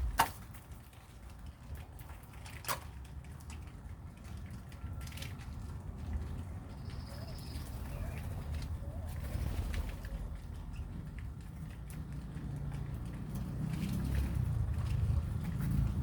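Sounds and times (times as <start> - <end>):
steady low rumble: 0.0 - 0.4
birds cooing and calling: 6.6 - 11.4.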